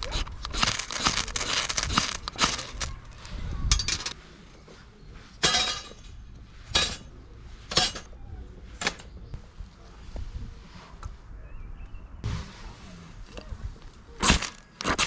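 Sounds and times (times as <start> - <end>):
camp cookware clinking: 0.0 - 4.2, 5.4 - 8.2.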